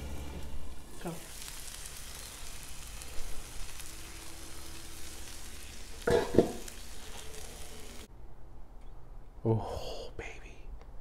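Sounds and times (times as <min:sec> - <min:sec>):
food sizzling on griddle: 0:00.0 - 0:08.1.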